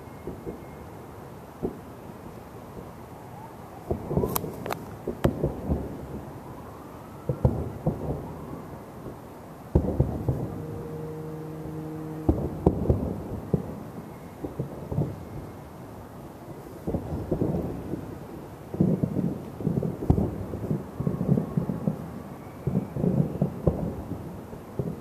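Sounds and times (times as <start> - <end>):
echoing booms and bangs: 9.7 - 15.2
steady pitched tone: 9.8 - 14.4.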